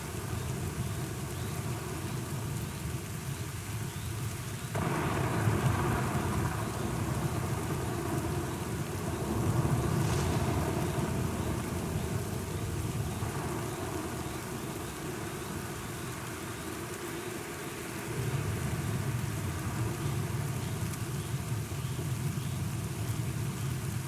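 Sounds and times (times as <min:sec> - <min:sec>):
steady rain: 0:00.0 - 0:24.0
rolling thunder: 0:04.8 - 0:16.3.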